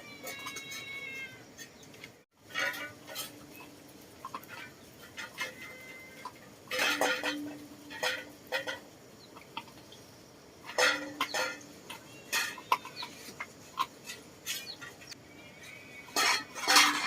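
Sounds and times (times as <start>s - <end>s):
cat meowing: 0.0s - 1.4s.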